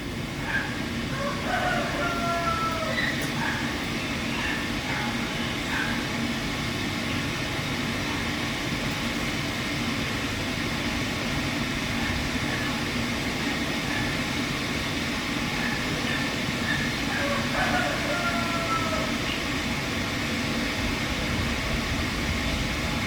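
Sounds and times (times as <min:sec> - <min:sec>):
steady rumbling: 0:19.0 - 0:23.0.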